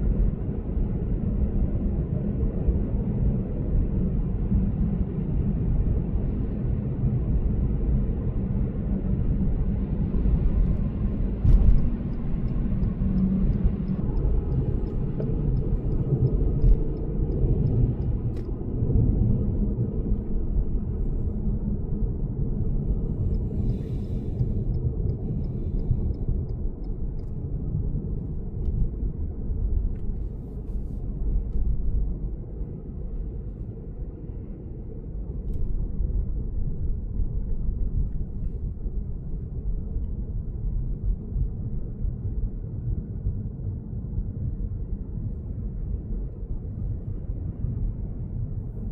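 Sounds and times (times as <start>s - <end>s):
road and tyre rumble: 0.0s - 48.9s
faint clicks and ticks: 11.5s - 18.6s, 23.2s - 27.4s.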